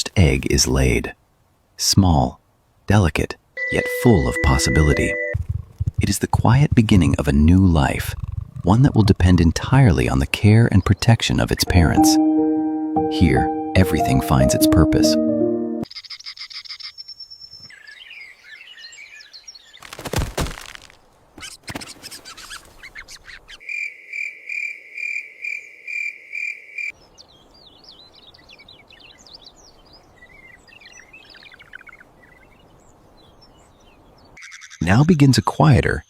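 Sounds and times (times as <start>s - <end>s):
small birds chirping: 27.0s - 35.0s.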